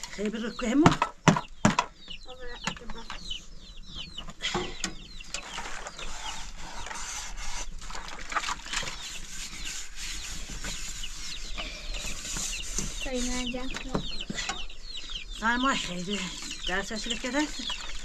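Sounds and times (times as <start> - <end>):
chicks cheeping: 0.0 - 18.0.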